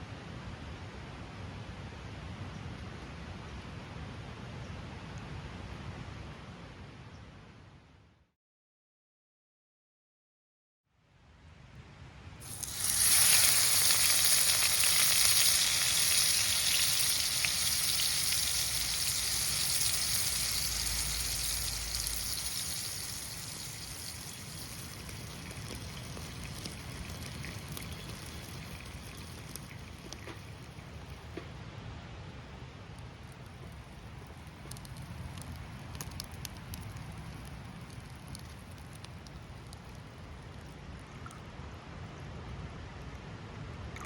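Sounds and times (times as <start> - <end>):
loud sizzling hiss: 12.4 - 31.4, 33.2 - 39.9.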